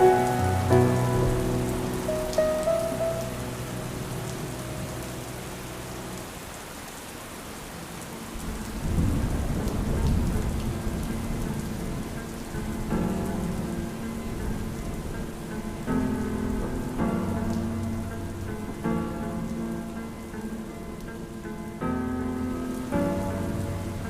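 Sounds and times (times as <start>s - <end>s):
thunder rumbling: 0.0s - 6.2s, 8.3s - 19.0s
soft music notes: 0.0s - 6.4s, 9.2s - 24.0s
steady rain falling: 0.0s - 24.0s.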